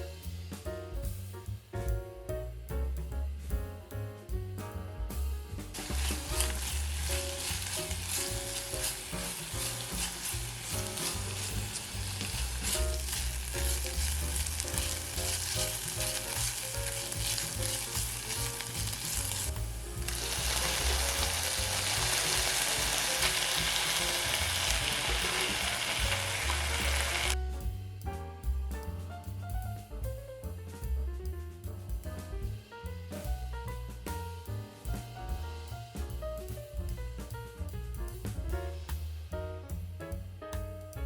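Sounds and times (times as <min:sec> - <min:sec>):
vegetables sizzling in oil: 0:05.7 - 0:27.4.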